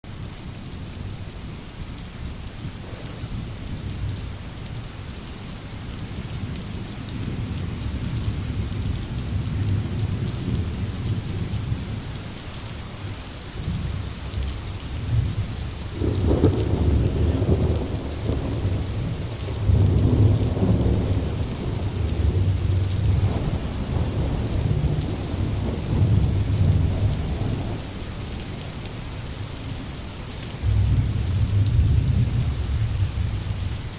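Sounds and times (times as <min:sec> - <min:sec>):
rain falling on foliage: 0:00.0 - 0:33.9
low rolling thunder: 0:02.4 - 0:04.8, 0:06.0 - 0:12.1, 0:13.6 - 0:28.8, 0:30.6 - 0:33.8.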